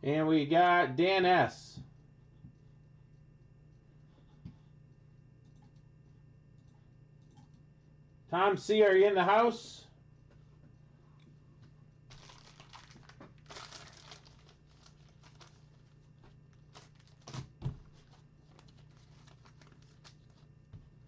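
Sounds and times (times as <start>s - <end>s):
trading cards crinkling: 12.1s - 20.7s.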